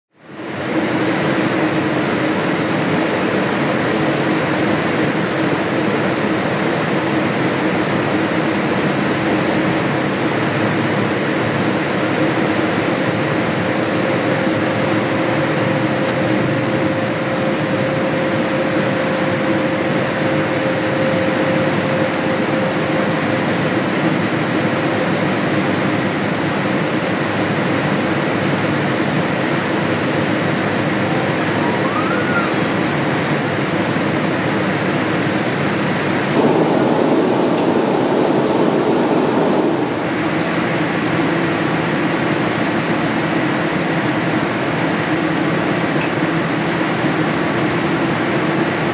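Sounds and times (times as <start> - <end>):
airliner cabin airflow hiss: 0.3 - 48.9
steady low hum: 35.9 - 41.4
higher hum: 36.3 - 40.9.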